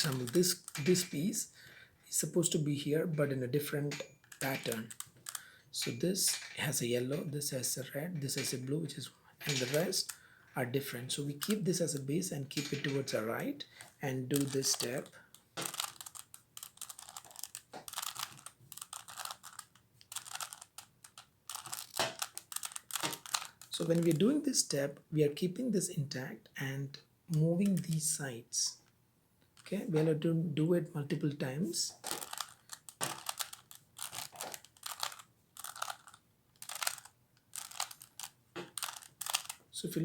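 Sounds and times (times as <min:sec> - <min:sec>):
plastic puzzle cube clicking: 0:00.0 - 0:01.3, 0:03.9 - 0:06.5, 0:13.8 - 0:24.2, 0:32.0 - 0:39.6.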